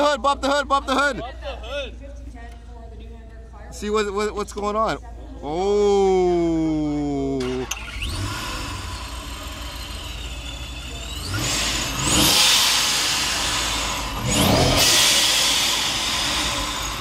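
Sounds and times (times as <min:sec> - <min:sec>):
supercharger whine: 0:06.3 - 0:17.0
supercharged engine idling and revving: 0:06.8 - 0:17.0.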